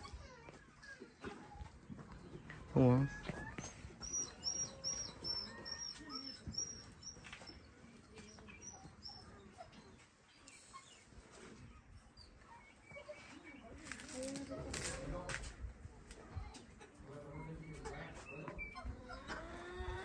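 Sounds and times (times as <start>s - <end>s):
small bird chirping: 0.1s - 14.3s.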